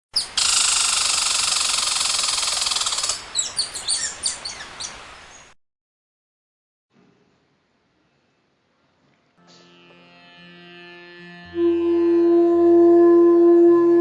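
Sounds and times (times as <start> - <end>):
loud rapid bird trill: 0.2 - 4.9.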